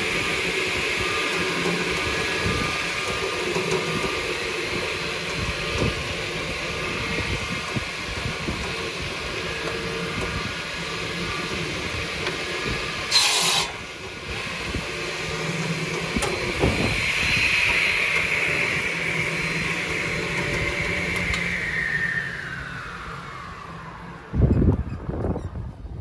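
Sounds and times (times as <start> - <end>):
saw whining: 0.0 - 24.9
saw blades cutting board: 12.2 - 14.2.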